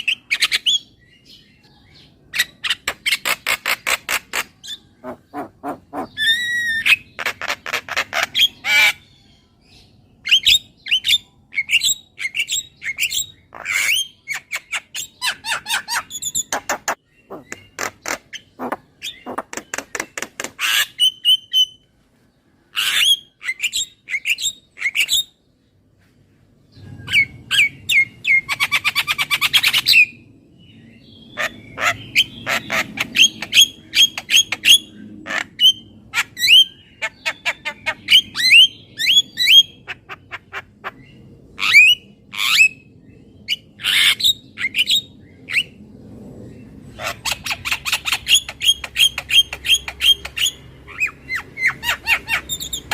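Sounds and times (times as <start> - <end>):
myna squawking and whistling: 4.4 - 9.0.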